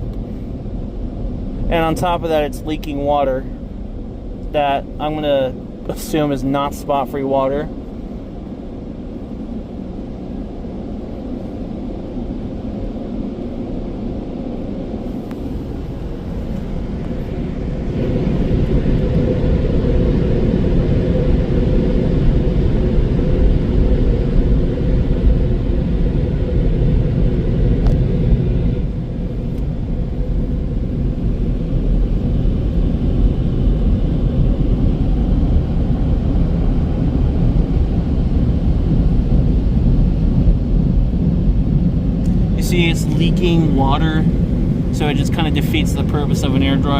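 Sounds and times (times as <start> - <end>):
car wash air dryer roaring: 0.0 - 46.9.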